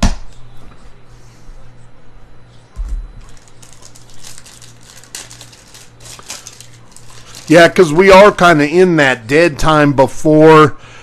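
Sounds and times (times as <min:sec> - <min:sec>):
low steady hum: 0:00.0 - 0:11.0
card wrappers crinkling and rustling: 0:03.2 - 0:08.6.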